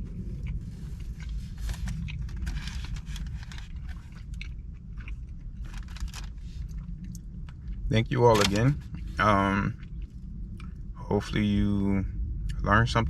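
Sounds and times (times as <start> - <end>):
steady low rumble: 0.0 - 13.0
person chewing food: 0.1 - 7.9.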